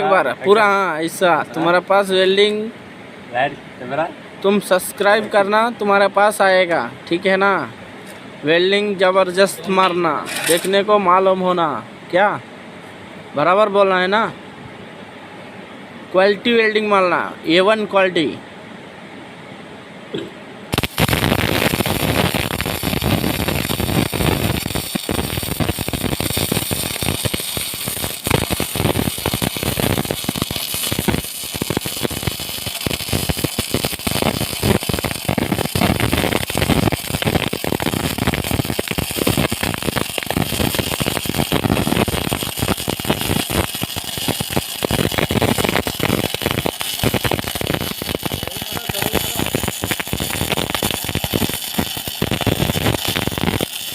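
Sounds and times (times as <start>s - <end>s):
electric arc welding sizzle: 10.0s - 10.9s, 20.7s - 53.9s.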